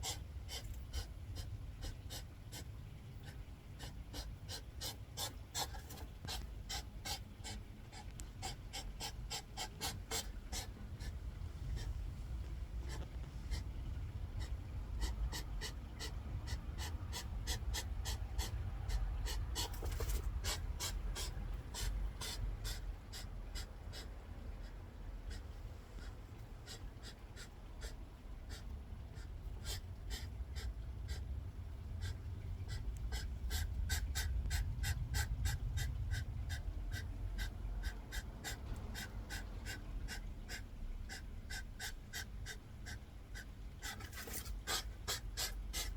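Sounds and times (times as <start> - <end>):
hedgehogs huffing and snorting: 0.0 - 12.0, 32.0 - 45.9.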